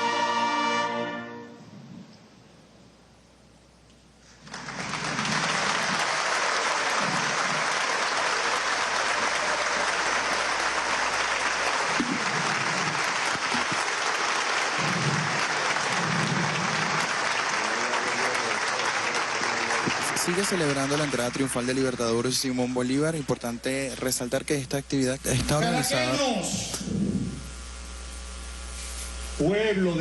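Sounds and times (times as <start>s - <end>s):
audience applauding: 4.3s - 24.7s.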